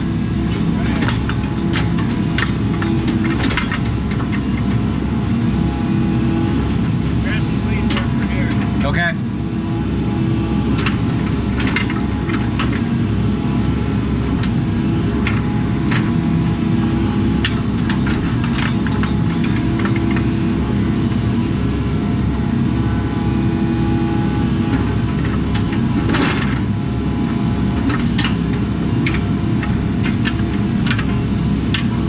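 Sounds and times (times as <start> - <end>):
diesel engine running under load: 0.0 - 32.0
sharp knocks and clicks: 0.5 - 4.8, 10.8 - 12.9.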